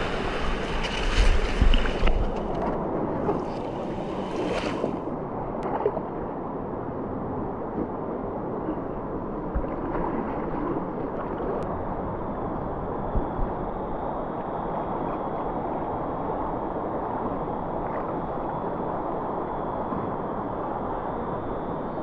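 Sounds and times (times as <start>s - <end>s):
river water rushing: 0.0s - 2.2s, 3.2s - 5.2s.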